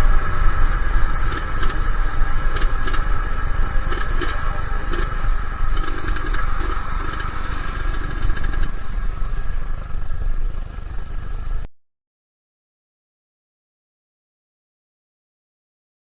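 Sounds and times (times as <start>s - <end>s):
two-stroke motorcycle engine running: 0.0s - 11.7s.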